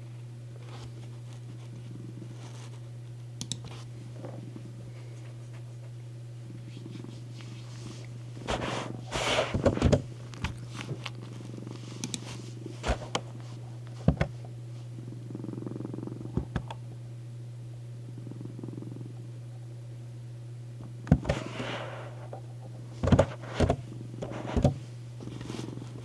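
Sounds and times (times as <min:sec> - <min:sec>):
cat purring: 0:01.8 - 0:02.6, 0:06.4 - 0:13.4, 0:15.0 - 0:16.6, 0:18.1 - 0:19.3.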